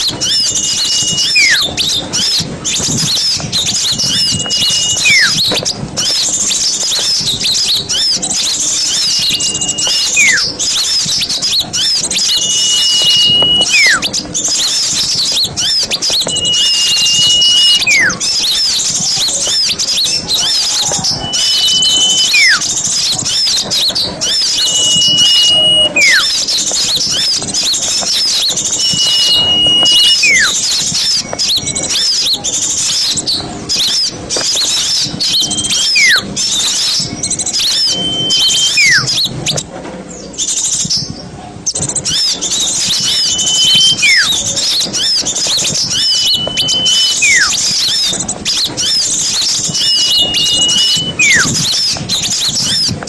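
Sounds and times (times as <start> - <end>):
bird whistle call sliding down: 0.0 - 39.6, 42.0 - 53.0
small birds chattering: 0.0 - 53.0.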